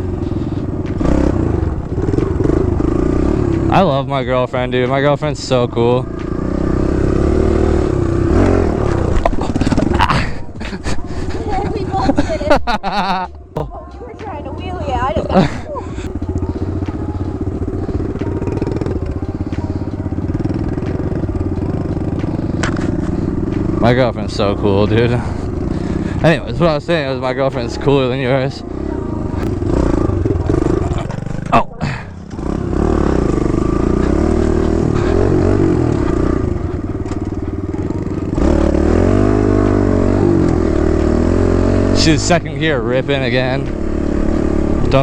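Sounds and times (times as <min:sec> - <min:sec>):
dirt bike engine running: 0:00.0 - 0:45.0.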